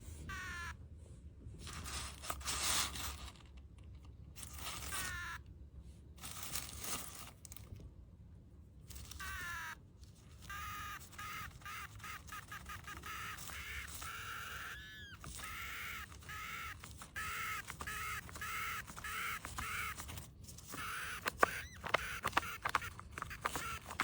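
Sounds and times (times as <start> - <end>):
paper bag rustling and tearing: 1.6 - 3.5, 4.4 - 5.1, 6.2 - 7.8, 11.9 - 24.0
drink cup squealing: 10.5 - 20.0, 20.7 - 24.0.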